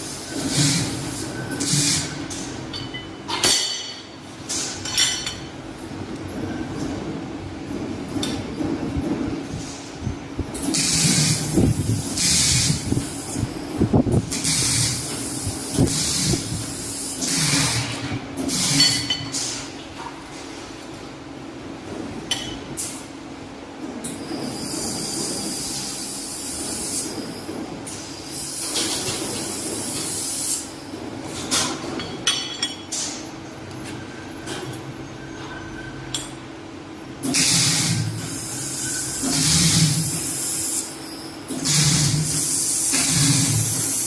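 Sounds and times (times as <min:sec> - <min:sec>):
laser welder hissing bursts: 0:10.8 - 0:13.4, 0:14.3 - 0:18.9, 0:24.5 - 0:27.1, 0:37.2 - 0:41.0, 0:41.6 - 0:44.0.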